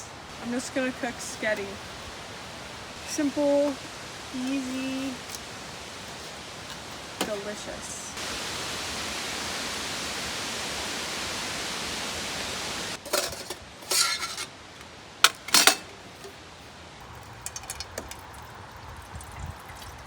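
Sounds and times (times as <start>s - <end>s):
steady hiss: 0.0s - 17.5s
cookware clanking and clinking: 13.0s - 14.5s, 15.3s - 15.9s.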